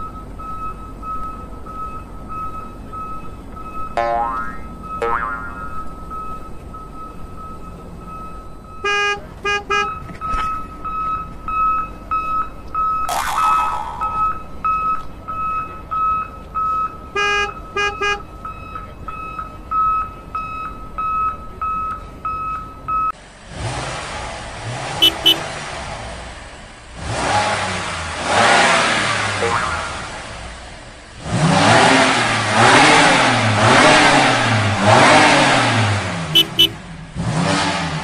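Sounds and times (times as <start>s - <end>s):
toy electronic beeping: 3.9s - 6.2s, 12.8s - 15.0s.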